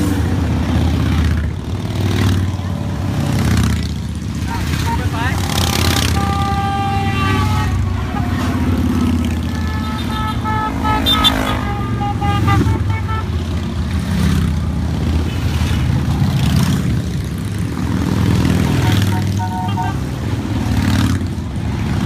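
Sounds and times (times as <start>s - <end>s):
motorcycles riding past: 0.0s - 22.0s
horns tooting: 4.3s - 14.3s, 18.4s - 22.0s.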